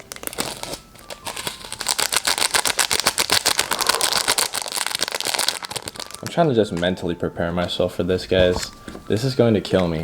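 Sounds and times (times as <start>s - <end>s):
plastic packet crinkling: 0.0s - 7.0s.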